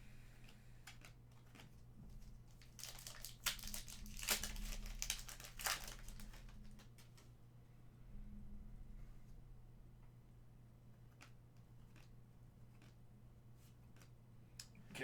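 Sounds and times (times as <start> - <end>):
packaging crinkling: 0.9 - 7.3
cards ticking and sliding: 2.5 - 7.3.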